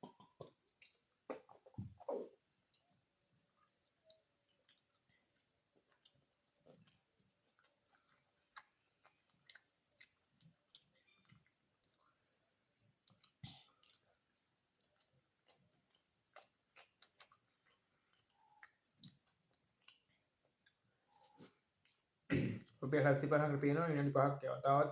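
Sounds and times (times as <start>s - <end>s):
person chewing with mouth clicks: 3.5s - 22.8s.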